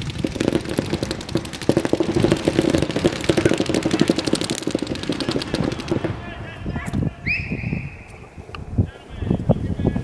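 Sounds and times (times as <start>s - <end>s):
distant paintball markers firing: 0.0s - 6.2s.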